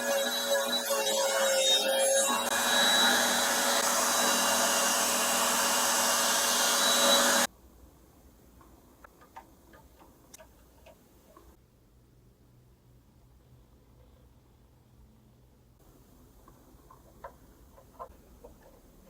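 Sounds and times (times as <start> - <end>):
power tool whirring: 0.0 - 7.5.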